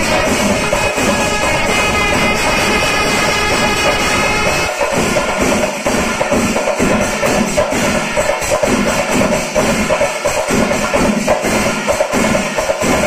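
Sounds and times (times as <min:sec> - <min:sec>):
held reed pipe note: 0:00.0 - 0:04.8
clashing hand cymbals: 0:00.0 - 0:13.0
drums beaten with sticks: 0:00.0 - 0:13.0.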